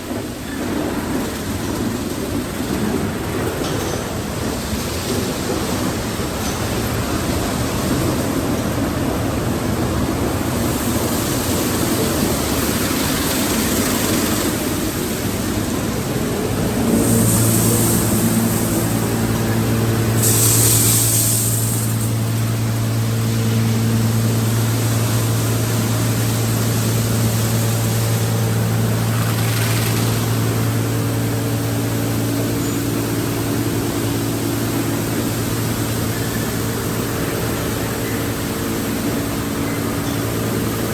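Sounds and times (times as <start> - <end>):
car wash machinery din: 0.0 - 40.9
motor humming: 10.5 - 40.8
short hissing bursts: 16.7 - 22.5.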